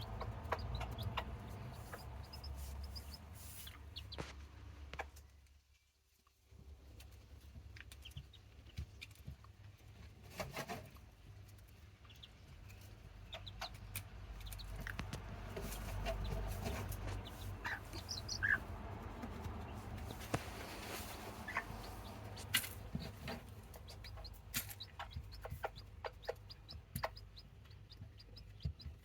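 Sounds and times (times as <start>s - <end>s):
hen clucking: 0.0s - 4.4s, 12.0s - 29.0s
chicks peeping: 0.0s - 5.2s, 7.3s - 29.0s.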